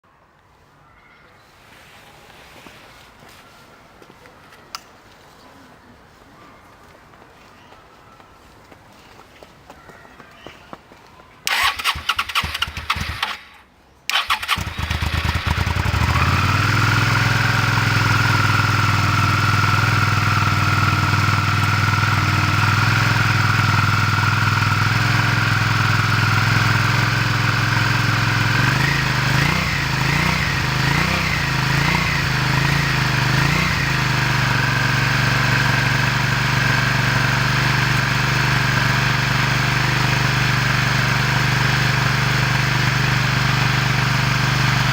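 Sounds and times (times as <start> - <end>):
motorcycle engine idling: 11.5 - 44.9
starter motor cranking: 11.5 - 44.9
engine revving with throttle blips: 14.1 - 44.9.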